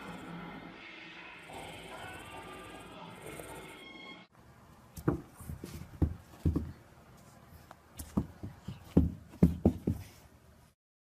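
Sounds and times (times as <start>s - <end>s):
dull thumps in a room: 4.9s - 6.8s, 8.0s - 10.2s.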